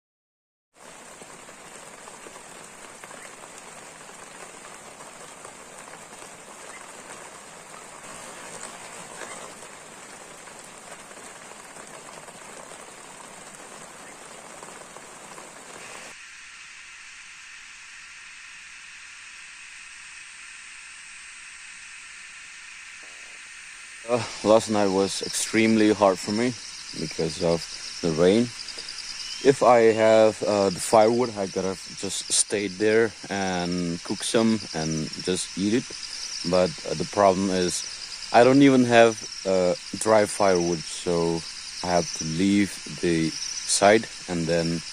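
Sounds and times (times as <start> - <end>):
rain falling: 0.8 - 17.9, 19.4 - 44.9
thinner higher hiss: 15.5 - 44.9.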